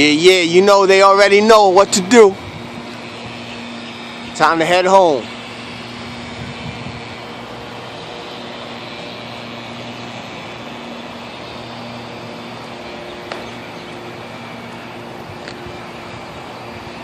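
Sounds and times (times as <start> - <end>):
steady mechanical hum: 0.0 - 17.0
sharp click: 13.2 - 13.5.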